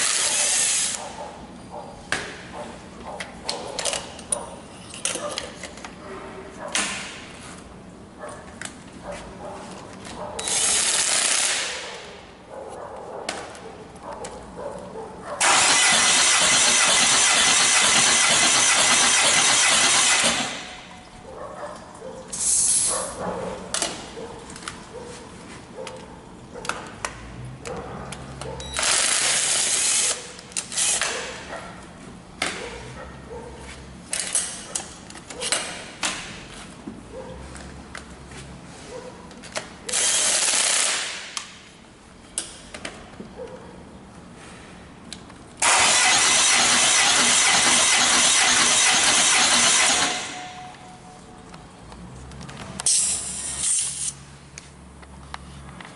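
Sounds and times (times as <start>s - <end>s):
diesel engine cranking: 15.4s - 20.8s, 45.6s - 50.8s.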